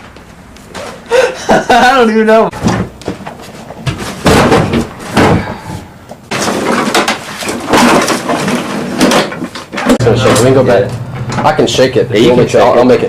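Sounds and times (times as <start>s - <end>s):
loud knocks or bangs: 3.8s - 5.6s
unpitched noise: 9.9s - 13.0s.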